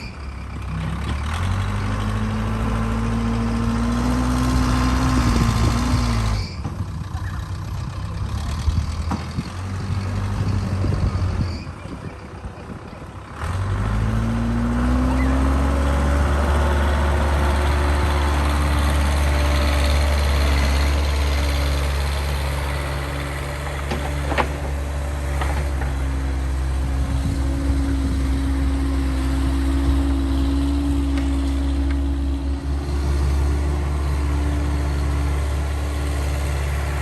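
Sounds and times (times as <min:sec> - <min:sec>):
backhoe engine revving: 0:00.0 - 0:37.0.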